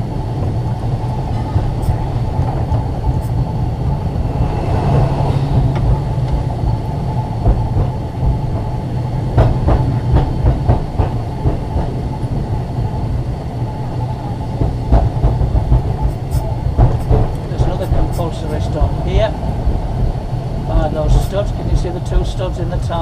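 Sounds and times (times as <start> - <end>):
tram wheels rumbling: 0.0 - 23.0
wheels clicking over rail joints: 5.6 - 13.0.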